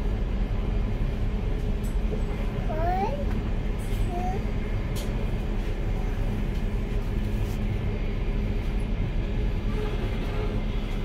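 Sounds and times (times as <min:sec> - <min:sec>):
train rumble inside carriage: 0:00.0 - 0:11.0.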